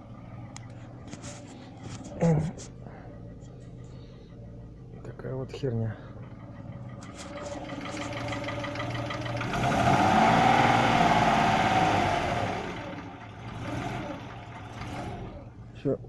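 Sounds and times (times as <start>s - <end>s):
car engine revving: 6.1s - 15.7s.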